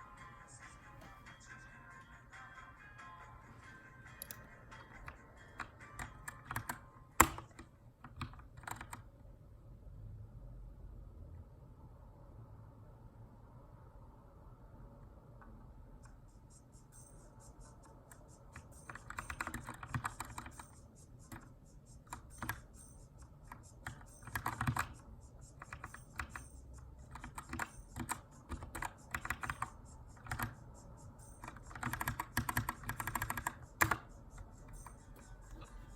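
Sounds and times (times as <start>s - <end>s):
mechanical keyboard typing: 4.2s - 9.1s, 18.1s - 35.8s.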